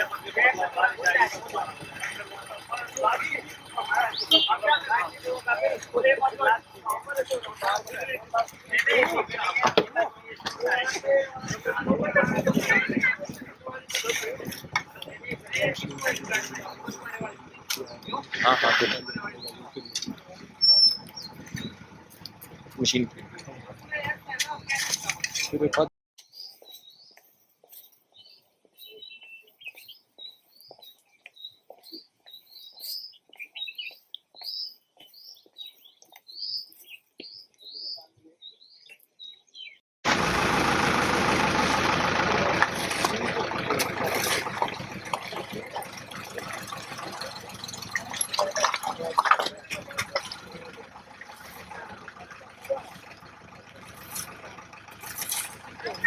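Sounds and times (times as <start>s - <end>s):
bird chirping: 0.0s - 8.9s, 14.9s - 25.0s, 26.2s - 39.8s
machinery engine running: 0.0s - 25.2s, 40.1s - 56.0s.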